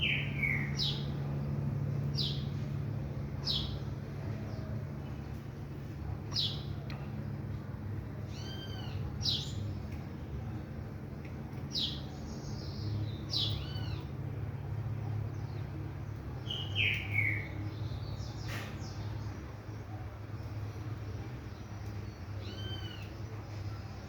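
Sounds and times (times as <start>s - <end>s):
birds chirping: 0.0s - 24.0s
steady low hum: 0.0s - 24.0s.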